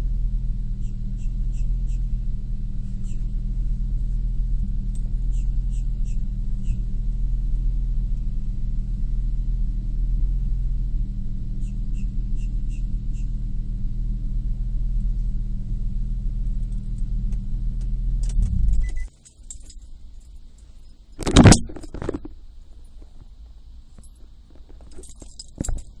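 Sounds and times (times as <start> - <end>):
car engine idling: 0.0 - 26.0
keys jangling: 18.4 - 22.0, 24.8 - 26.0.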